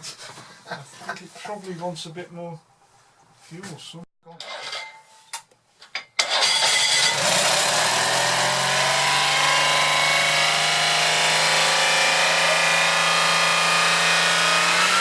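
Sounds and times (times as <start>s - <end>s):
car engine starting: 6.2s - 15.0s.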